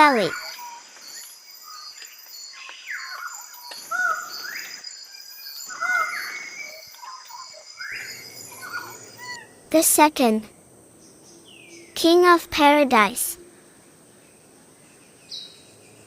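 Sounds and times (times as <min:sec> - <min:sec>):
high insect drone: 0:00.0 - 0:12.2
bird calling with swooping notes: 0:05.6 - 0:09.6.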